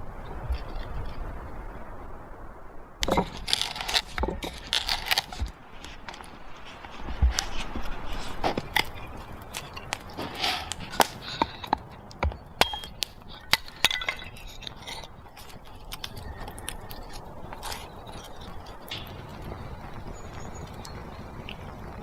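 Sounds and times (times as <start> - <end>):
low hiss: 0.0 - 22.0
faint scraping: 3.0 - 20.8
sharp clicks and clinks: 8.5 - 19.4.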